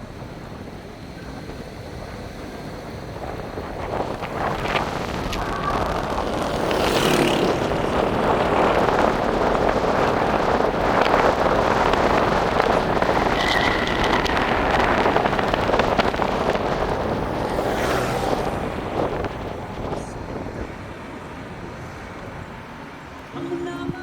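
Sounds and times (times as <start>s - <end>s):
vehicle road and wind noise: 0.0s - 24.0s
brief high tone: 13.3s - 16.2s.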